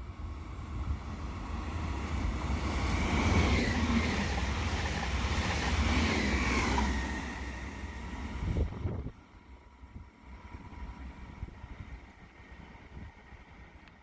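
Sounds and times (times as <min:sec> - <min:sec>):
train rumbling past: 0:00.0 - 0:13.8.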